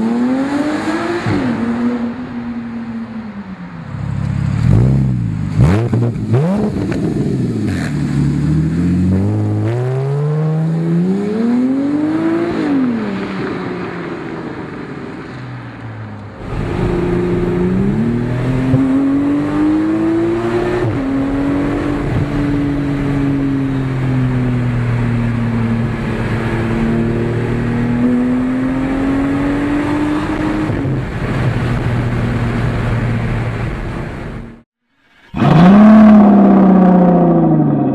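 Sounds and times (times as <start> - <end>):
sports car engine accelerating: 16.2 - 37.9.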